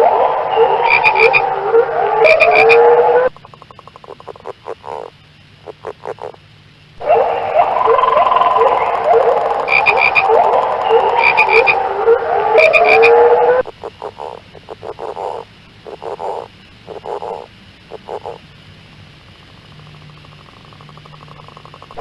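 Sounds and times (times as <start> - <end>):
frog chorus: 0.0 - 22.0
frogs croaking in pulsed bursts: 0.0 - 22.0
high pulsed trills: 7.0 - 15.4.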